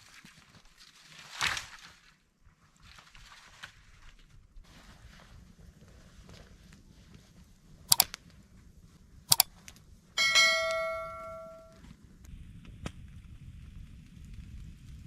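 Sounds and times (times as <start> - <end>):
sharp metallic clinks: 10.2 - 11.8
struck metal ringing: 10.2 - 11.8.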